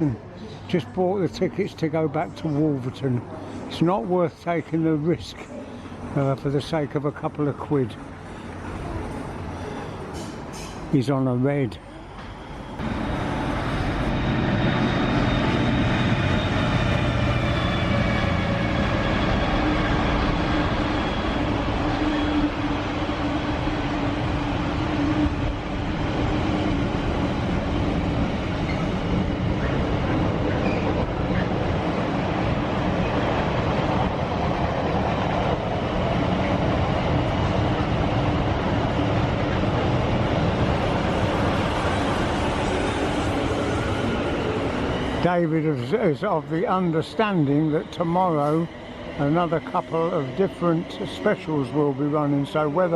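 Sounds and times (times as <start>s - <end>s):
train wheels rumbling: 12.2s - 52.9s.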